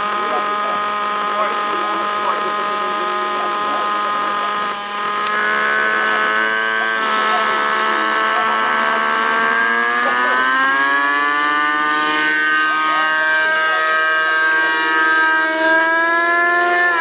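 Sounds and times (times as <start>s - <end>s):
model helicopter whine: 0.0s - 17.0s.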